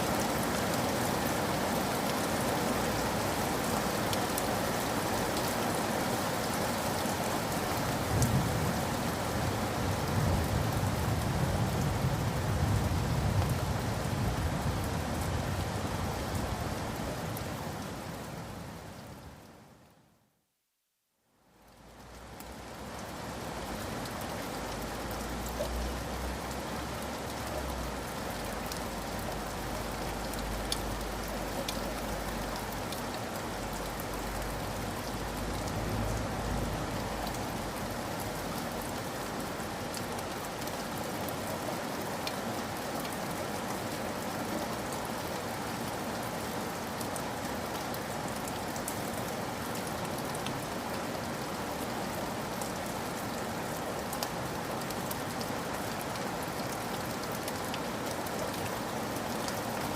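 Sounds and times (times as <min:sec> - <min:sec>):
rain pattering: 0:00.0 - 0:19.9, 0:21.5 - 0:59.9.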